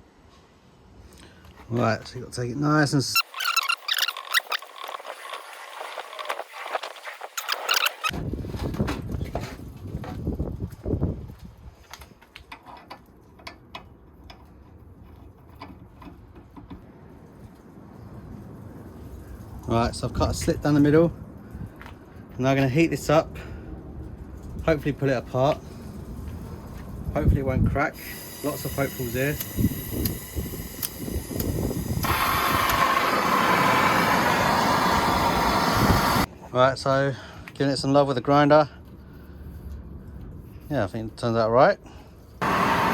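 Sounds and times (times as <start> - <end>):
gas torch roaring: 27.9 - 36.3, 42.4 - 42.9.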